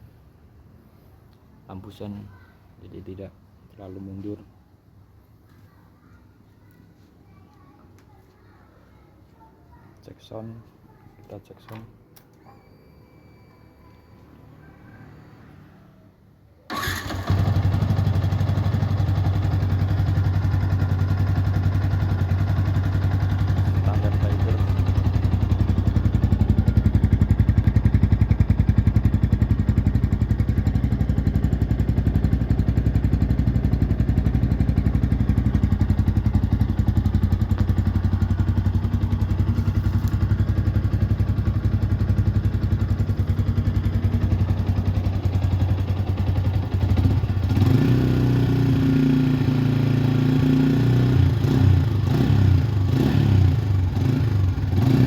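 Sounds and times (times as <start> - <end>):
motorcycle engine idling and revving: 16.7 - 55.0.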